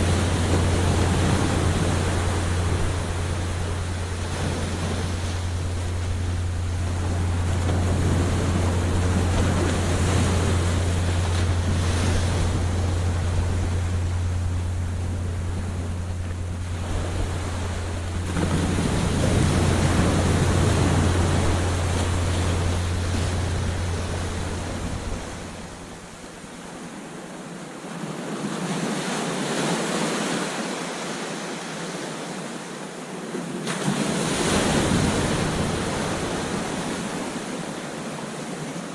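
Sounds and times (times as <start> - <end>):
wind rumble on microphone: 0.0 - 26.6, 33.8 - 37.9
ocean surf breaking on beach: 0.0 - 38.9.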